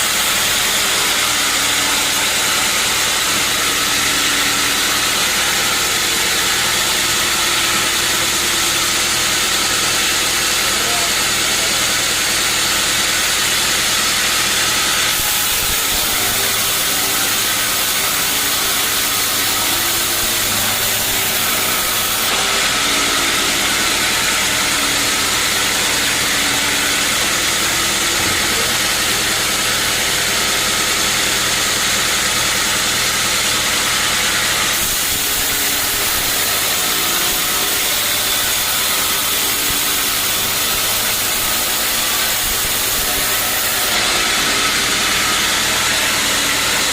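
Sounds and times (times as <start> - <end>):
loud saw hiss: 15.1 - 22.4, 34.7 - 44.0.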